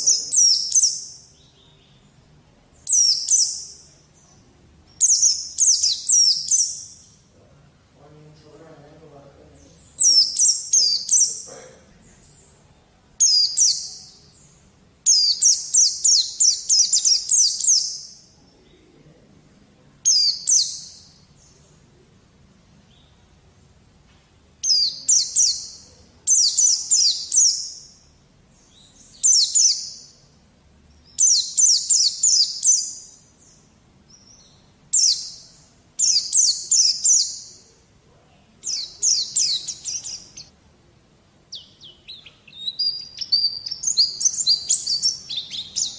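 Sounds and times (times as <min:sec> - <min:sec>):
white-eye twittering song: 0:00.0 - 0:02.1, 0:02.8 - 0:07.3, 0:09.6 - 0:11.8, 0:13.2 - 0:18.6, 0:20.1 - 0:21.7, 0:24.6 - 0:30.3, 0:31.1 - 0:37.8, 0:38.6 - 0:40.5, 0:41.5 - 0:45.9.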